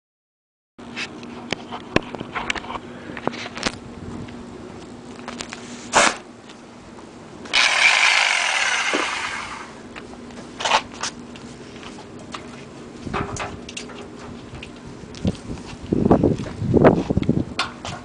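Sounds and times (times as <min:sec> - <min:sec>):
tool hissing and whirring: 0:07.5 - 0:09.8.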